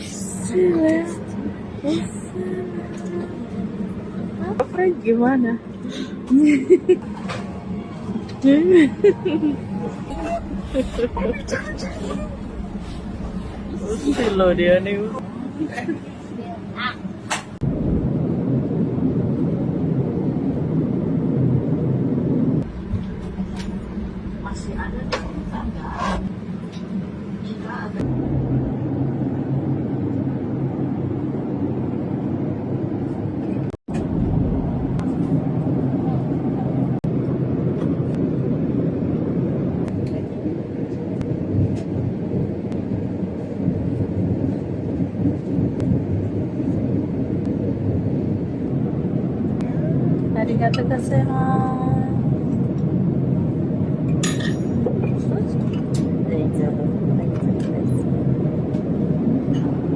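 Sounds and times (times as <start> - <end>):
jet aircraft rumble: 0.0 - 59.9
machinery noise: 0.3 - 17.6.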